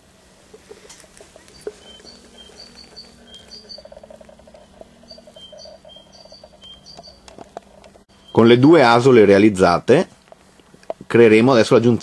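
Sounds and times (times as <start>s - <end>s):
steady low hum: 0.0s - 12.0s
rapid pulsing note: 0.4s - 7.3s
small birds chirping: 0.4s - 8.6s.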